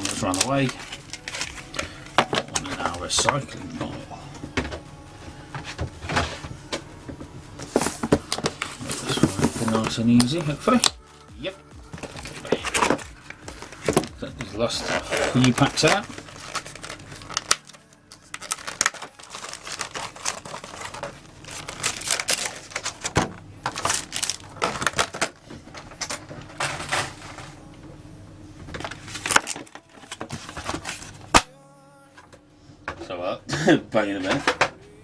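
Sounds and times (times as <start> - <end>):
foil packs crinkling: 0.0 - 27.7, 28.7 - 31.8
cardboard box rustling: 5.5 - 27.5.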